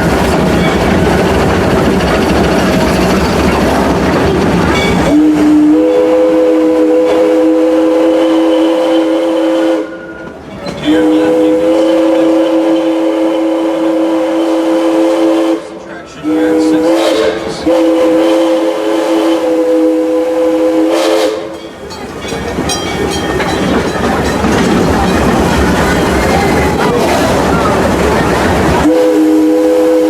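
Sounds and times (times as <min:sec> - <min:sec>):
rail clicks: 0:00.0 - 0:05.8, 0:09.9 - 0:12.9, 0:21.4 - 0:30.0
train rumbling: 0:00.0 - 0:30.0
steam locomotive whistle: 0:04.9 - 0:21.6, 0:28.8 - 0:30.0.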